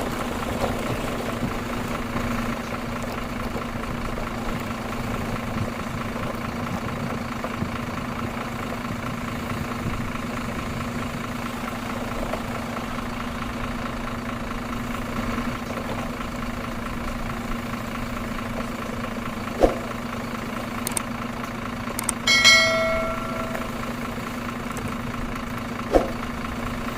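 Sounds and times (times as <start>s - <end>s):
engine humming: 0.0s - 26.9s
brief ringing tone: 22.3s - 24.0s.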